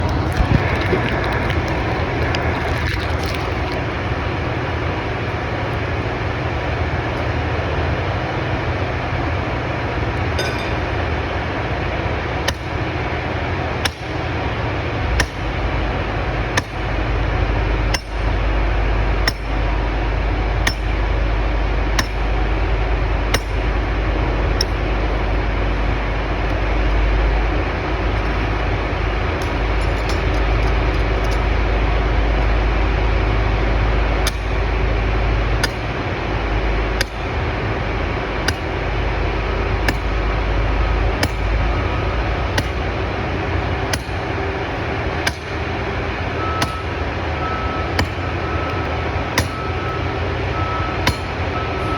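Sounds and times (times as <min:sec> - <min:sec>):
steady loud background noise: 0:00.0 - 0:51.9
sledgehammer striking steel pins: 0:10.3 - 0:11.0, 0:46.5 - 0:47.0, 0:47.7 - 0:49.9, 0:51.0 - 0:51.9.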